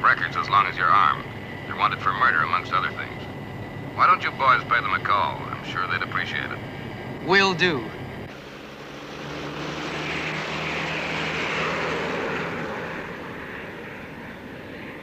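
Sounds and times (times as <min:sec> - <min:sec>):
aircraft engine rush: 0:00.0 - 0:15.0.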